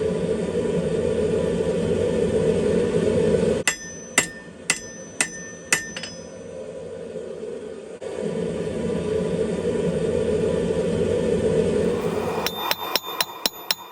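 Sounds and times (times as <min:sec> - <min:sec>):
hammer blows on steel anvil: 0:03.6 - 0:06.4, 0:11.8 - 0:13.9.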